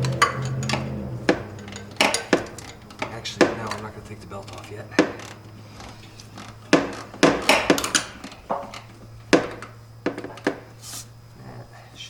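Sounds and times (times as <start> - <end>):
hand tools clinking on metal: 0.0 - 8.9.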